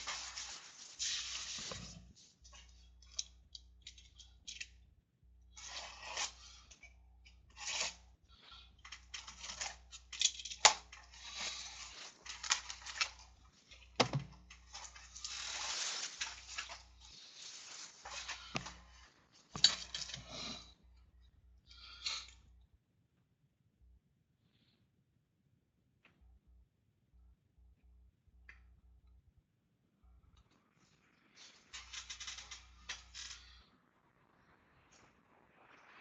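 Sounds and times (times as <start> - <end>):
wrappers crinkling and tearing: 0.0 - 2.2, 9.1 - 20.6.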